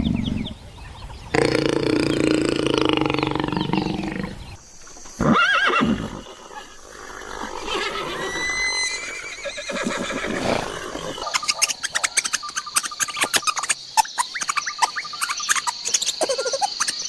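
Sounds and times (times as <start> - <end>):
long low animal call: 0.0 - 4.6
rising and falling animal call: 1.3 - 4.6, 5.2 - 11.7.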